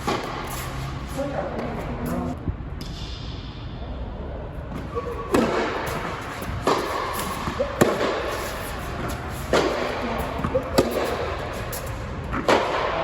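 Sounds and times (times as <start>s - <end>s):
tennis ball hits: 0.0s - 0.8s, 4.7s - 13.0s.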